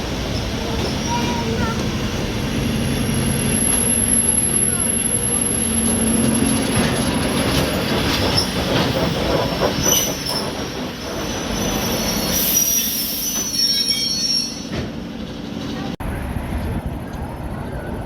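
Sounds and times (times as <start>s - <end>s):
train rumbling on rails: 0.0s - 18.0s
wheel squeals: 3.3s - 14.9s.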